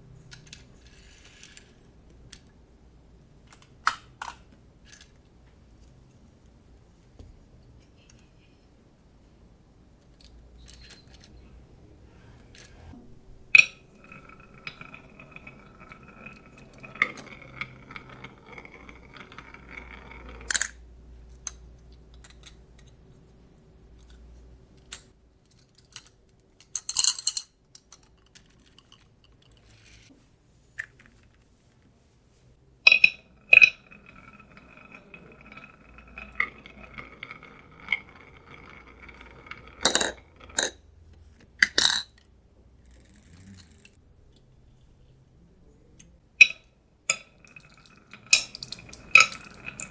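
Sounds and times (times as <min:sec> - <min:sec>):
marble rolling ringing hum: 0:13.0 - 0:20.9, 0:32.8 - 0:40.8, 0:46.4 - 0:49.9
marbles clicking on track: 0:13.5 - 0:20.8, 0:32.9 - 0:40.8, 0:46.4 - 0:49.9.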